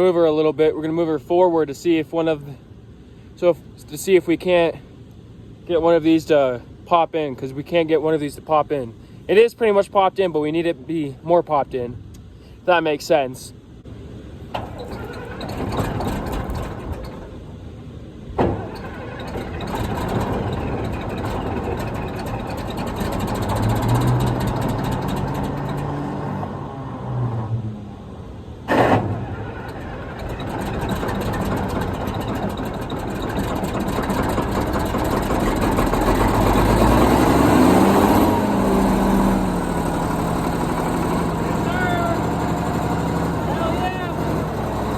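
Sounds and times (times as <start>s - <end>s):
tractor diesel engine running: 14.6s - 17.8s, 18.4s - 25.9s, 28.7s - 44.9s.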